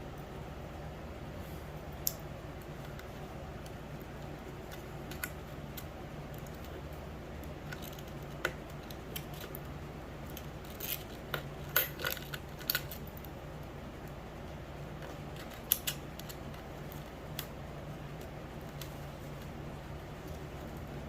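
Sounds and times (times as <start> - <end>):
steady low hum: 0.0 - 21.0
wire hangers clicking and clinking: 10.3 - 13.3.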